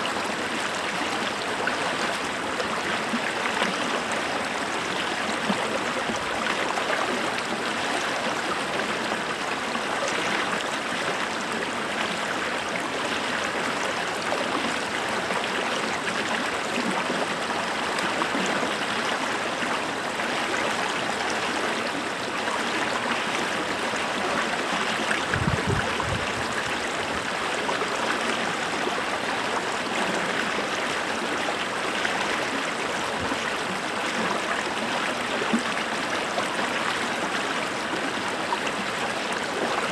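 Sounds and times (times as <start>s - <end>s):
creek flowing over stones: 0.0s - 39.9s.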